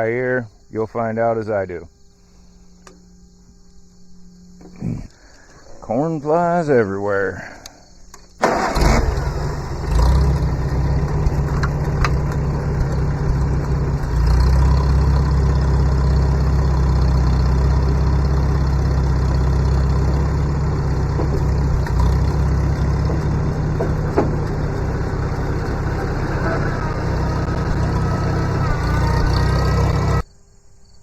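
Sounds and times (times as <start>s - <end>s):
tractor engine running: 8.2s - 30.2s.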